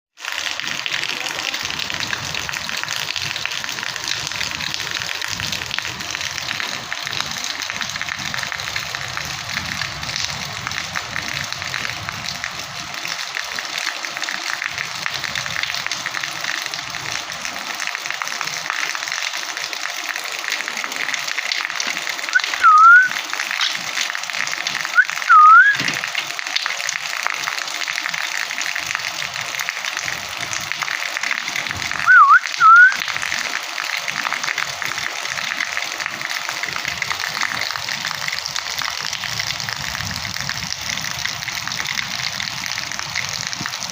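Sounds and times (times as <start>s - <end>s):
steady rain: 0.2s - 43.9s
parrot whistled calls: 22.4s - 23.2s, 25.0s - 25.9s, 32.0s - 33.0s.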